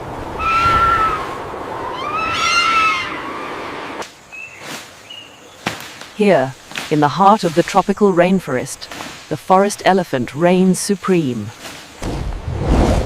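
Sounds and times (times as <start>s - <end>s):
animal crying: 0.4s - 1.3s, 1.9s - 3.6s.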